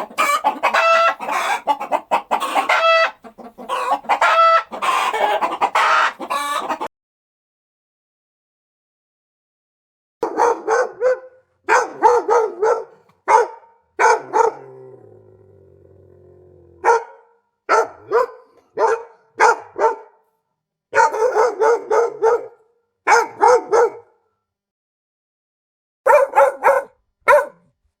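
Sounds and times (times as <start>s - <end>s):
dog barking: 10.2s - 14.8s, 16.8s - 20.3s, 20.9s - 24.3s, 26.0s - 27.8s.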